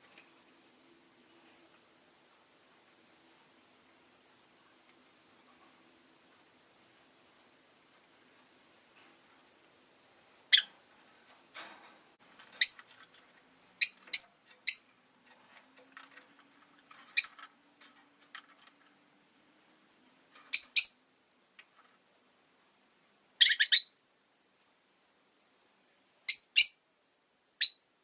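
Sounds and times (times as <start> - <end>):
lovebirds chirping: 10.5 - 10.8, 12.5 - 13.0, 13.8 - 15.0, 16.9 - 17.5, 20.5 - 21.1, 23.4 - 24.0, 26.3 - 26.8.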